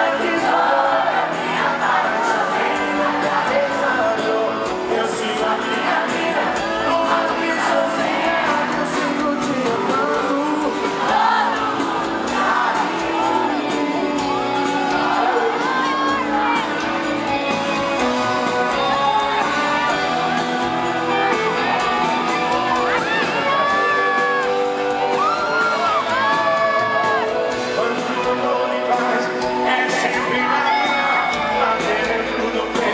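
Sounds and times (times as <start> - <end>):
audience shouting: 0.0 - 4.0, 10.6 - 17.0, 18.0 - 27.6
live band playing: 0.0 - 32.9
person singing: 0.0 - 32.9.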